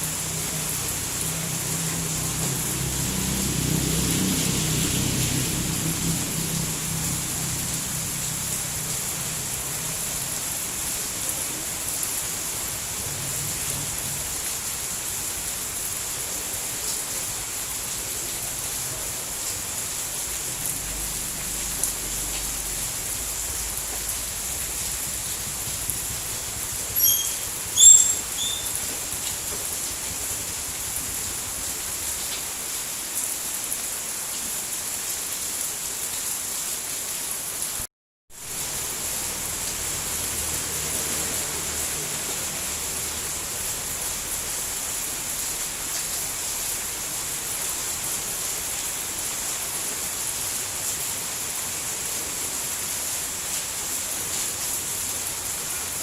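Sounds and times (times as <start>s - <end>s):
steady rain hiss: 0.0s - 56.0s
brief high chirps: 27.0s - 28.8s.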